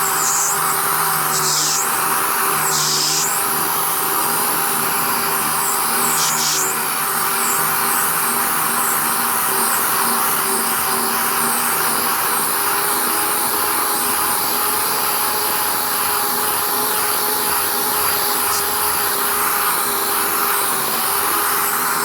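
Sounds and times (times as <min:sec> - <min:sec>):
air sander whining: 0:00.0 - 0:09.9, 0:15.3 - 0:22.0.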